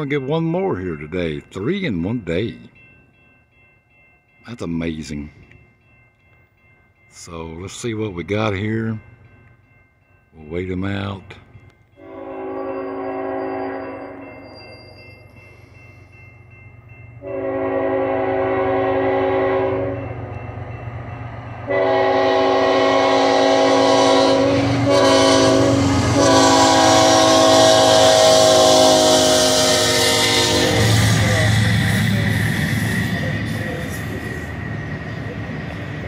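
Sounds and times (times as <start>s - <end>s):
train wheels rumbling on rails: 10.6s - 36.0s
locomotive air horn blasts: 12.0s - 14.2s, 17.2s - 20.0s, 21.7s - 31.6s.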